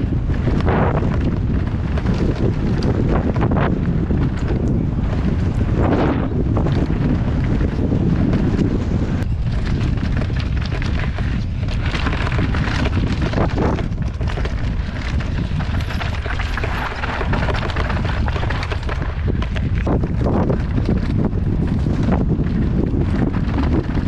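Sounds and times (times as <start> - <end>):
bike rattling and knocking: 0.0 - 24.0
bike tyres rumbling on dirt: 0.0 - 24.0
wind buffeting microphone: 0.0 - 24.0.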